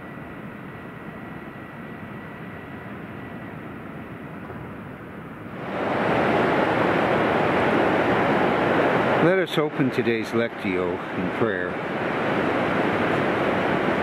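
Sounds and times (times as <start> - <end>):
surf washing onto beach: 5.6 - 14.0.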